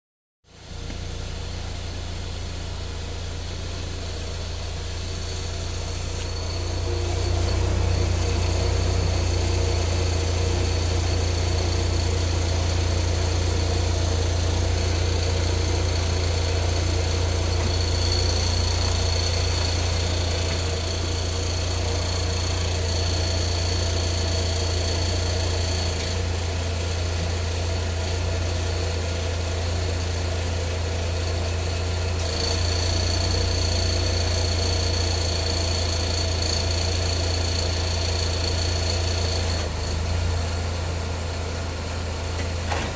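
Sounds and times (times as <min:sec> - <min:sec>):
car engine idling with rattle: 0:00.5 - 0:42.9.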